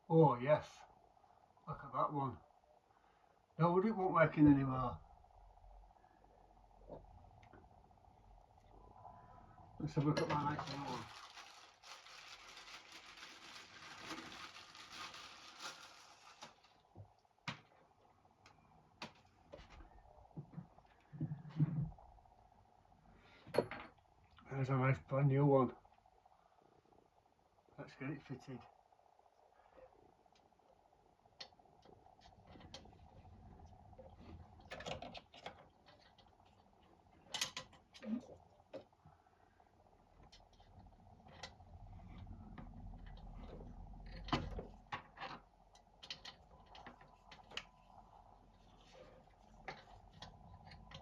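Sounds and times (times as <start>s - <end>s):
packaging rustling: 10.4s - 16.9s.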